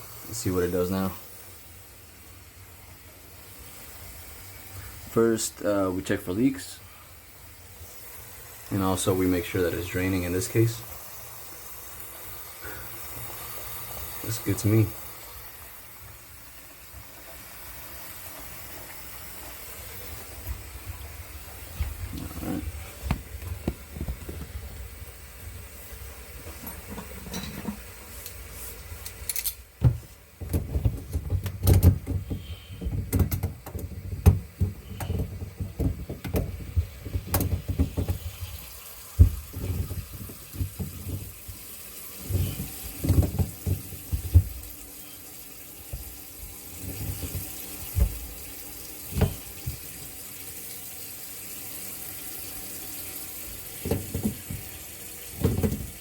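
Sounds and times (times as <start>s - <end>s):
faucet water running into sink: 0.0s - 56.0s
knocks and clunks: 21.8s - 24.6s, 29.8s - 38.6s, 39.2s - 41.6s, 42.2s - 44.7s, 46.9s - 48.4s, 49.1s - 49.8s, 53.8s - 54.8s, 55.4s - 56.0s.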